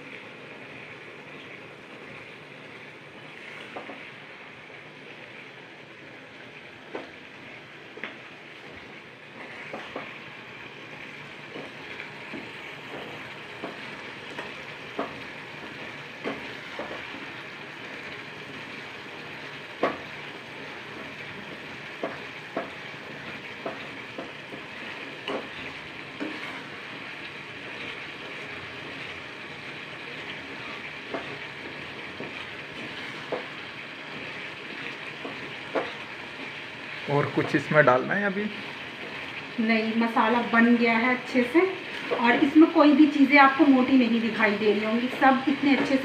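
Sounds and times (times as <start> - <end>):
masala sizzling in oil: 0.0 - 46.0
metal ladle scraping and knocking pan: 23.6 - 27.0, 30.2 - 36.6.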